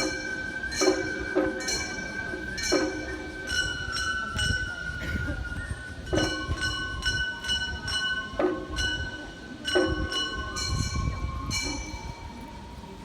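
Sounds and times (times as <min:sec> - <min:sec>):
flute long held notes: 0:00.0 - 0:06.3.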